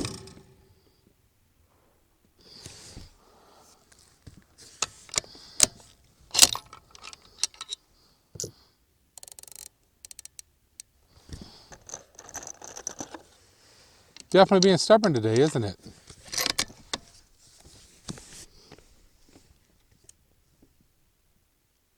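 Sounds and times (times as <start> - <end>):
rifle bolt clicks and clacks: 4.8 - 7.8, 9.2 - 10.9, 14.2 - 17.1.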